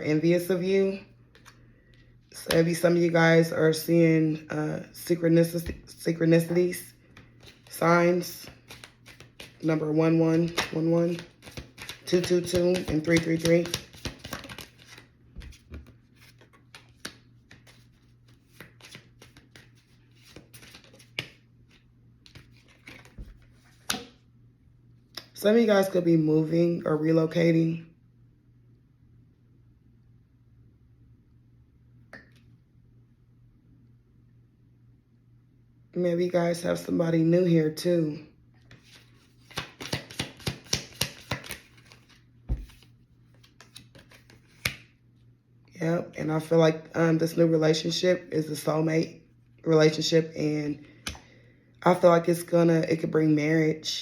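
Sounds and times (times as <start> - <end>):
cards being shuffled: 7.0 - 24.2, 38.7 - 44.9.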